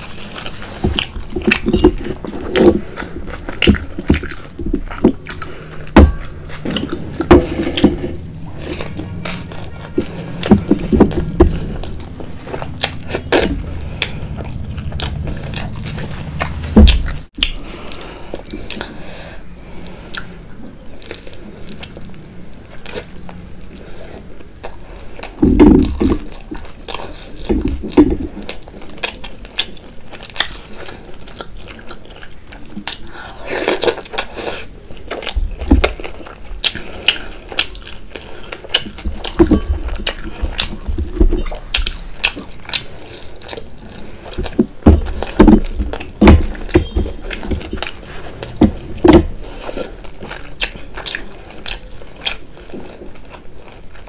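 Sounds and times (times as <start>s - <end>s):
crunchy chewing: 0.0s - 19.0s, 19.8s - 54.0s
low steady hum: 0.0s - 54.0s.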